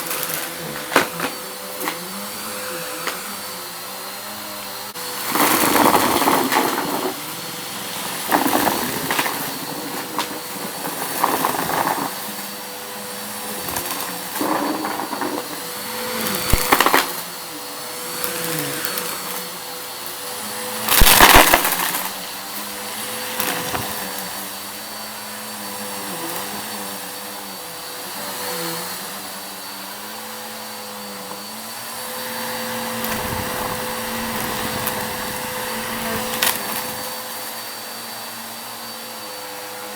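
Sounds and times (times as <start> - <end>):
vacuum cleaner running: 0.0 - 39.9
crackling of debris sucked up: 33.0 - 37.0.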